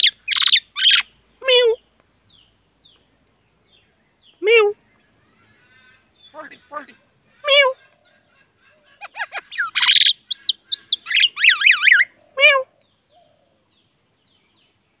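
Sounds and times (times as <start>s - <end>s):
myna calling: 0.0s - 1.9s, 4.3s - 13.6s.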